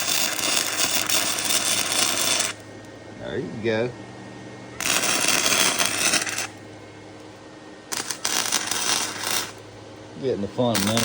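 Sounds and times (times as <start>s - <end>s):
welding arc crackling: 0.0s - 3.0s, 4.8s - 7.3s, 7.9s - 9.8s, 10.6s - 11.0s
low steady hum: 0.0s - 11.0s.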